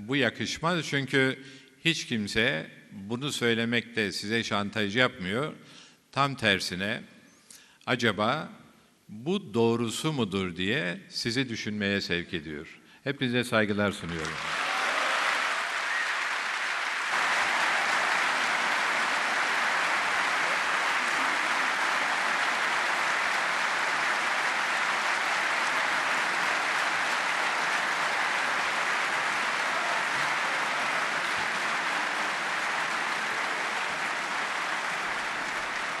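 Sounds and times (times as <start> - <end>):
audience applauding: 14.1 - 36.0.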